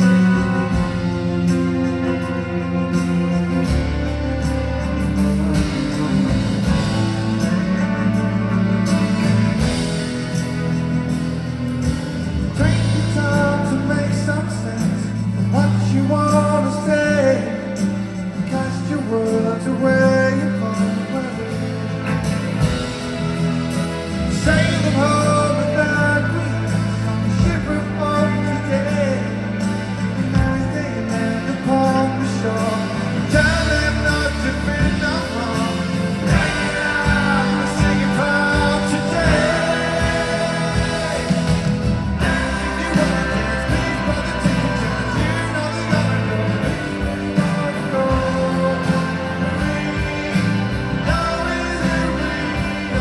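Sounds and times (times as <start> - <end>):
man singing lead vocal: 0.0 - 11.0, 12.3 - 53.0
rock band guitars and bass: 0.0 - 53.0.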